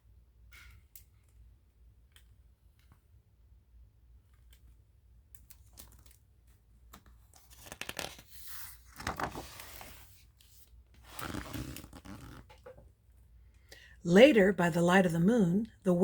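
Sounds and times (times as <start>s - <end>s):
paper pages rustling: 7.0s - 12.5s.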